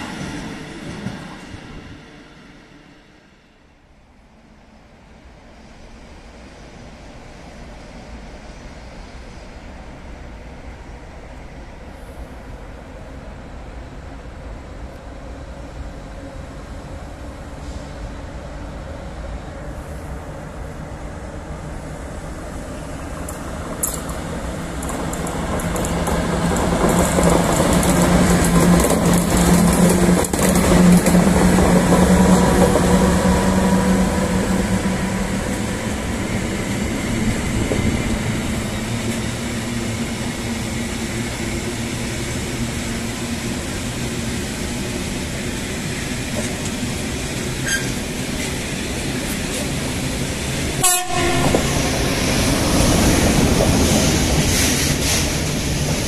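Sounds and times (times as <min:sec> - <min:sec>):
another train rumbling past: 0:00.0 - 0:56.0
train wheels clickety-clack: 0:23.2 - 0:34.4, 0:46.0 - 0:50.0, 0:50.8 - 0:56.0
electric locomotive low tone: 0:50.8 - 0:53.8.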